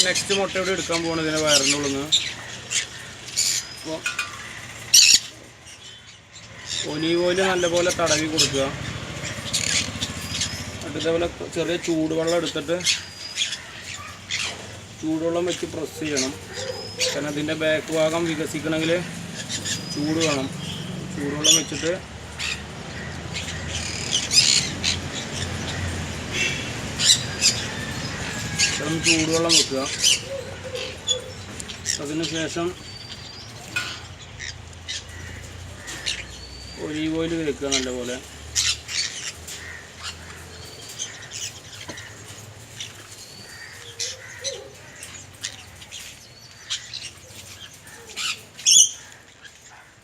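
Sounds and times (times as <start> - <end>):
parrot squawking harshly: 0.0 - 5.4, 12.4 - 14.7, 21.4 - 36.5, 37.7 - 42.2.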